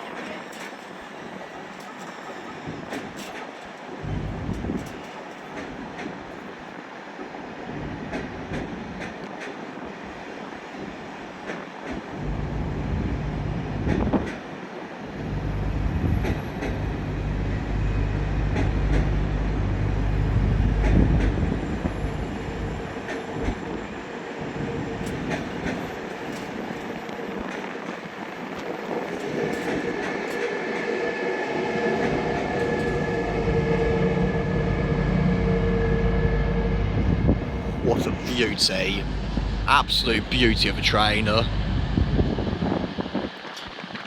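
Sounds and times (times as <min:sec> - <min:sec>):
train rumbling: 0:00.0 - 0:44.0
electric whine: 0:32.0 - 0:42.8.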